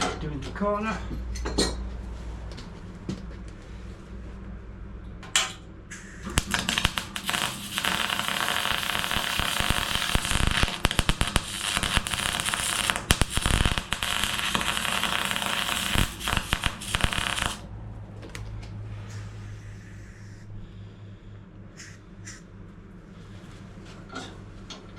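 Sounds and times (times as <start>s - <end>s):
welding arc crackling: 6.0s - 17.7s.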